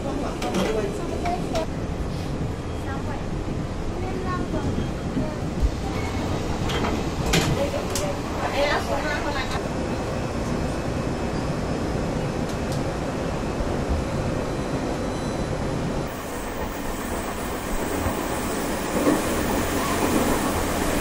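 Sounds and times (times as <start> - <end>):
train wheels rumbling: 0.0 - 21.0.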